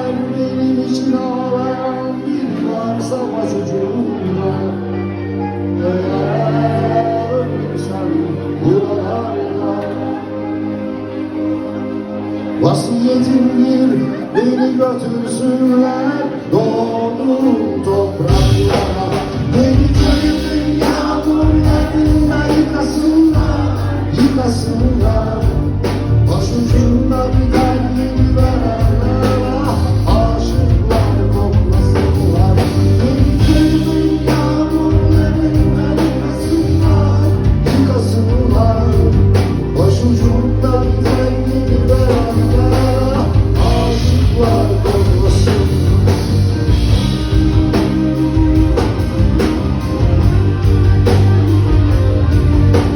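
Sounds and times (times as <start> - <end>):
live rock band playing: 0.0 - 52.9
person singing: 0.0 - 52.9.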